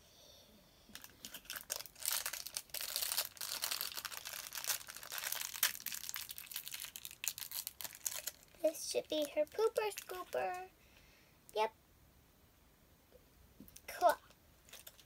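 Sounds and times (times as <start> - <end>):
plastic packaging crinkling: 0.9 - 10.7, 14.6 - 15.0.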